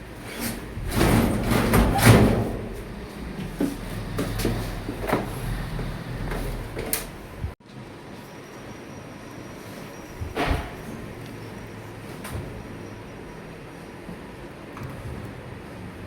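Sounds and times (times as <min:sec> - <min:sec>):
air conditioner scraping: 0:00.0 - 0:07.6.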